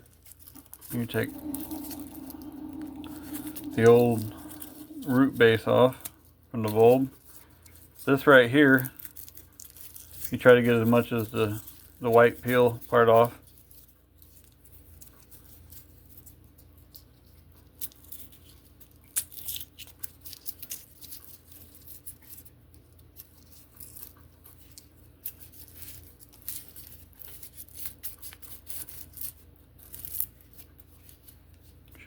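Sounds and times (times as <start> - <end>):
garlic skin crackling and tearing: 8.9 - 10.3, 17.8 - 22.4.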